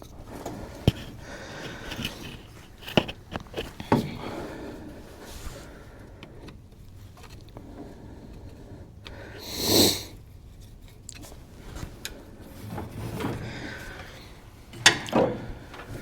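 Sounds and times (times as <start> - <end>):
person sniffing: 9.2 - 10.2.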